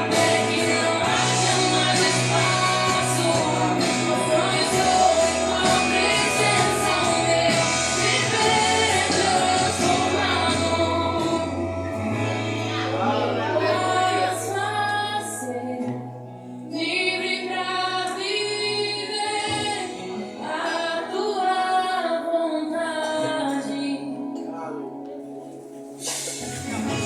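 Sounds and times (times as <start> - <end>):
sustained bass: 0.0 - 16.3
women singing together: 0.0 - 24.4.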